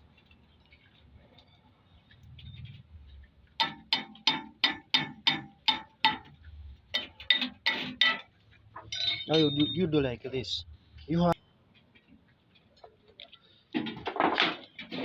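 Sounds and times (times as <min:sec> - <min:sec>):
hammer tapping on metal: 0:03.6 - 0:06.4.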